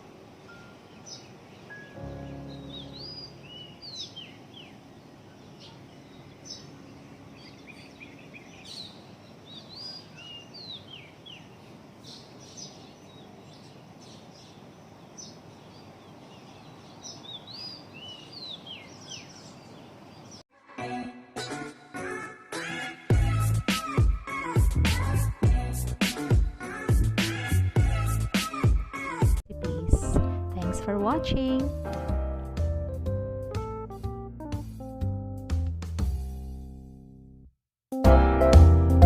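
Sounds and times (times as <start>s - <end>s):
outdoor background hiss: 0.0s - 20.5s
wild birds chirping: 0.0s - 20.5s.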